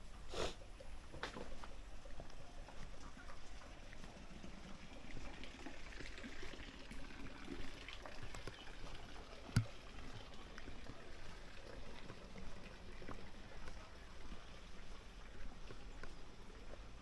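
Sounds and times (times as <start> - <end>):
faint trickling water: 0.0 - 17.0
small ticks: 7.6 - 13.8.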